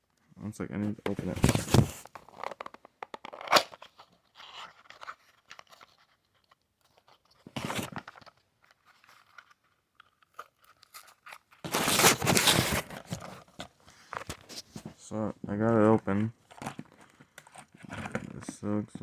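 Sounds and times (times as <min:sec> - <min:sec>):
packaging tearing and crunching: 0:10.0 - 0:13.4.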